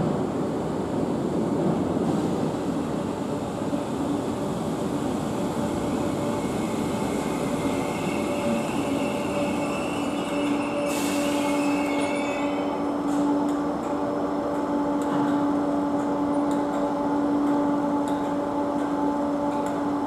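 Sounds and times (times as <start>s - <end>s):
electric train hum: 0.0s - 20.0s
high brake squeal: 7.6s - 12.9s.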